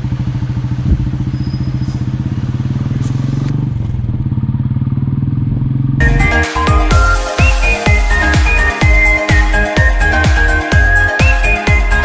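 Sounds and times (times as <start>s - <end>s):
motorcycle engine pulsing: 0.0s - 12.0s.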